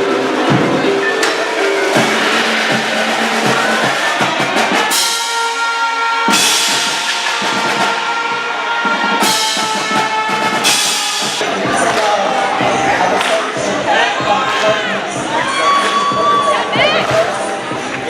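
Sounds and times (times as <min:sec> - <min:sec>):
held notes over drums: 0:00.0 - 0:13.0
drum-led music: 0:00.0 - 0:18.0.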